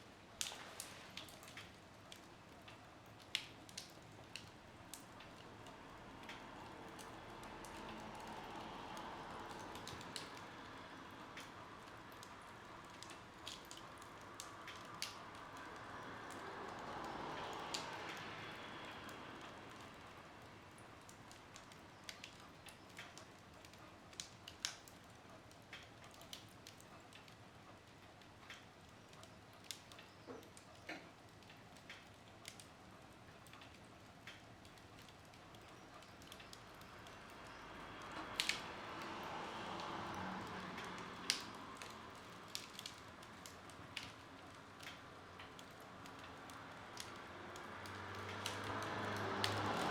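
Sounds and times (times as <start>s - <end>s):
wood fire crackling: 0.0s - 49.9s
burning logs popping and snapping: 0.4s - 18.8s, 19.4s - 49.9s.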